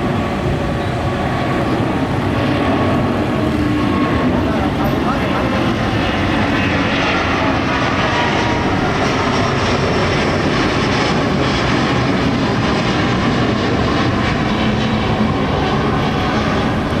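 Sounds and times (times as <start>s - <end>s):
airliner engines running: 0.0s - 17.0s.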